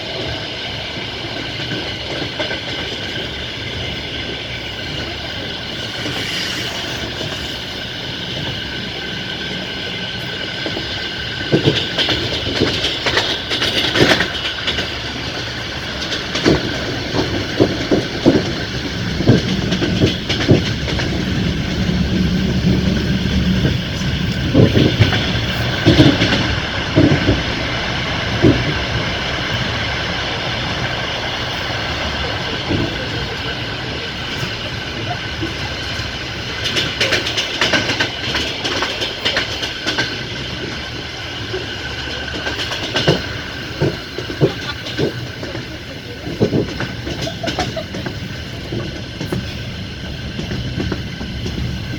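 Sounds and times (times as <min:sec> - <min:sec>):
train wheels rumbling on rails: 0:00.0 - 0:51.9
wheels clacking over rail joints: 0:00.0 - 0:51.9
high wheel squeal: 0:05.6 - 0:08.4.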